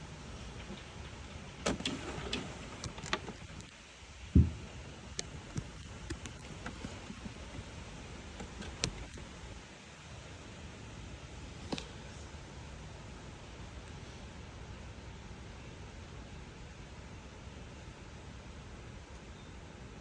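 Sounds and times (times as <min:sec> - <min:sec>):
loud low thump: 0:04.4 - 0:04.7
clicks and knocks: 0:04.4 - 0:09.4.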